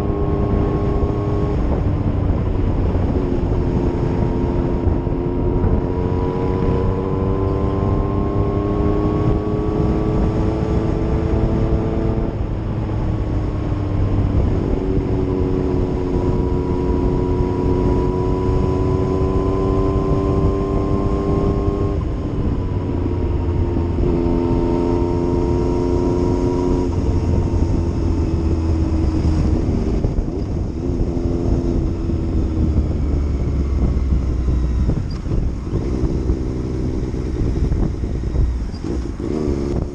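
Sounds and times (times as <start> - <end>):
motorcycle engine shifting gears: 0.0 - 39.9.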